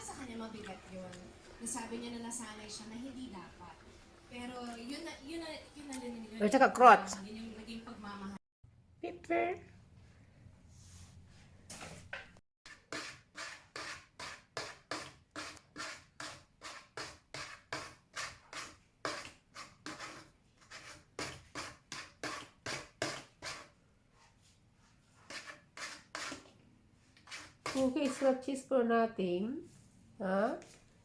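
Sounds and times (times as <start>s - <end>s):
cat scratching: 27.2s - 28.4s.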